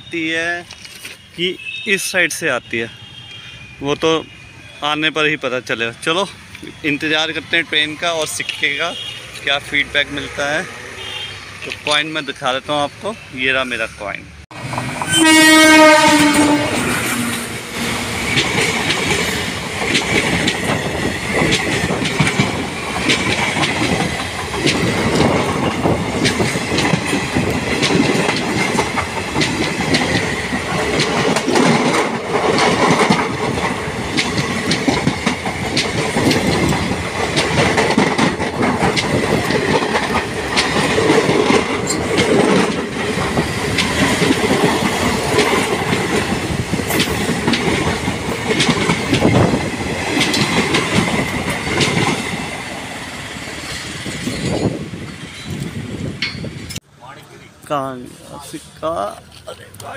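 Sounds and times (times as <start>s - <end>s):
train horn: 10.9s - 11.5s, 15.0s - 17.7s
wheels clattering over rail joints: 17.8s - 56.8s.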